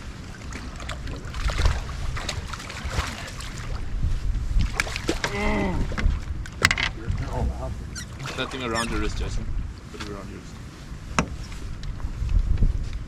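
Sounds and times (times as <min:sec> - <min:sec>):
wind rumbling on microphone: 0:00.0 - 0:13.0
fishing tackle knocks and clicks: 0:06.6 - 0:07.0.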